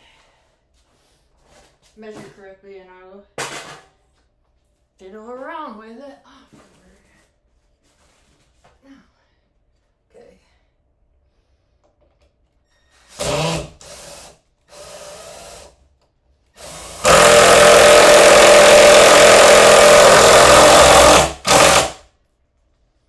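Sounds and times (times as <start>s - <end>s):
power drill driving screw into wood: 13.1s - 15.7s, 16.6s - 22.0s.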